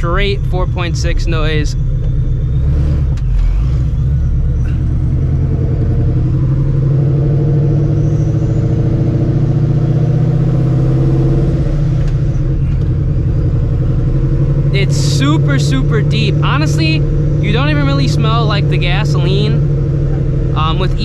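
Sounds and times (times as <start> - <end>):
loud deep car exhaust: 0.0 - 21.0.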